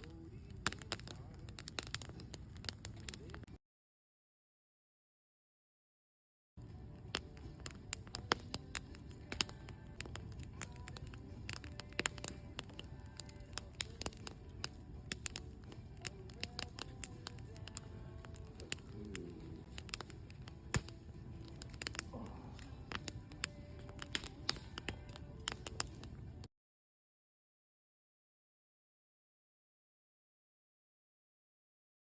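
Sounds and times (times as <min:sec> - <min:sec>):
campfire crackling and popping: 0:00.0 - 0:03.5, 0:06.6 - 0:26.5
low rush of fire: 0:00.0 - 0:03.5, 0:06.6 - 0:26.5.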